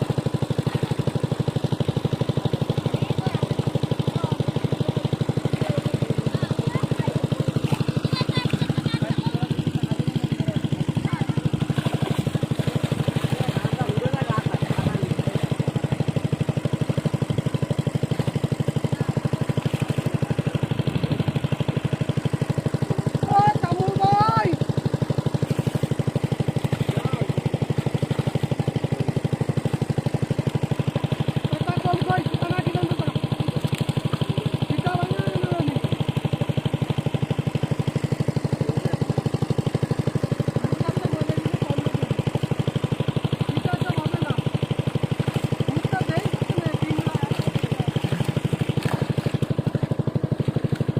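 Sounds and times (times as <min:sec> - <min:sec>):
small engine running: 0:00.0 - 0:50.9.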